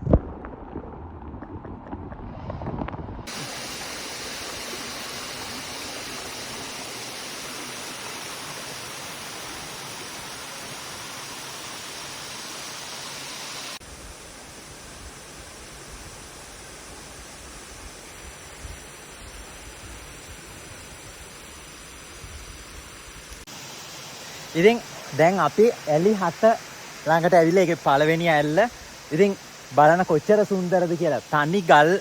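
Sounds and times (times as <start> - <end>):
waterfall rushing: 3.3 - 13.8, 23.5 - 32.0.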